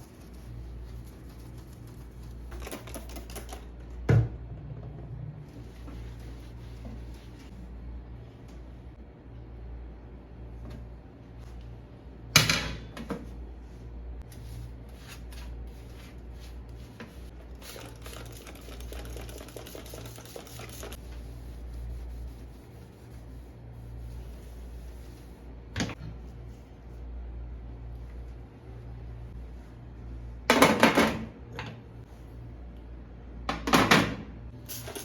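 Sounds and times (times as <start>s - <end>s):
steady low hum: 3.5s - 30.5s.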